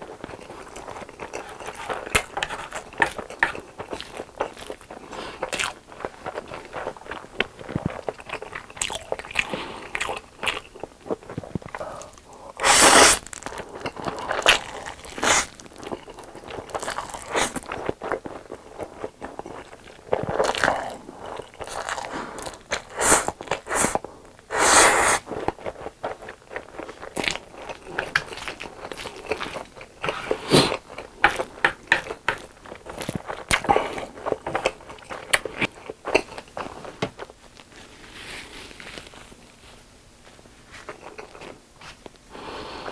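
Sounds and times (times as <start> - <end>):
wet chewing: 0.0 - 37.7
noisy mouth sounds: 11.4 - 13.9, 20.5 - 25.3.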